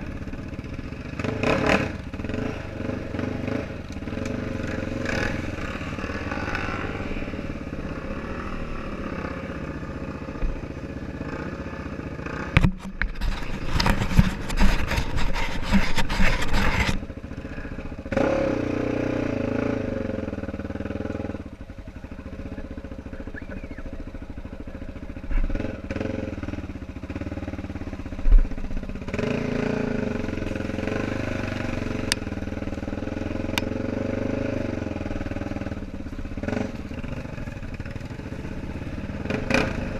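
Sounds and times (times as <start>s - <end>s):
atv engine running: 0.0s - 39.9s
loud clattering and crackling: 12.6s - 17.0s.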